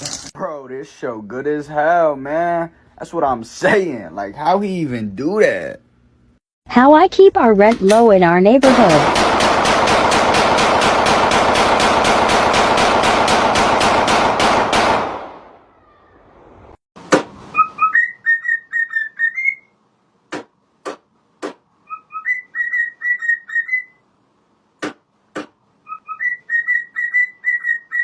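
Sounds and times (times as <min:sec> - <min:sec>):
rapid automatic gunfire: 0:08.6 - 0:15.4
whistling: 0:17.6 - 0:19.7, 0:21.9 - 0:24.0, 0:25.9 - 0:28.0.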